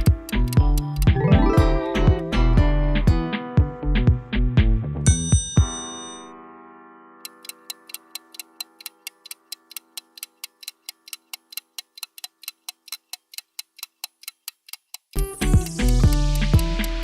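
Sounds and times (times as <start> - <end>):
sharp clock-like ticks: 0.0 - 1.2, 7.2 - 17.0
sustained musical chord: 1.2 - 3.4.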